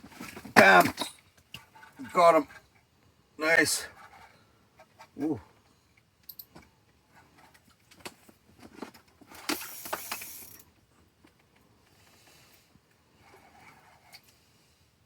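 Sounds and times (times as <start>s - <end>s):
fishing reel clicks and rattles: 9.4s - 10.6s.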